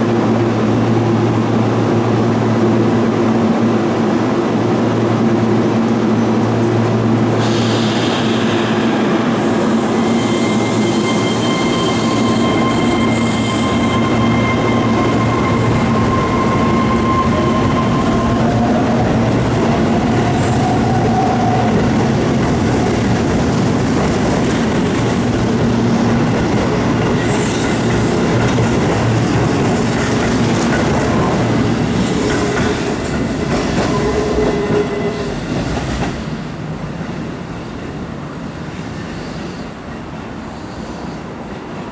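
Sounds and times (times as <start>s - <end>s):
train rail and wheel noise: 0.0s - 41.9s
train motor whine: 7.8s - 21.9s.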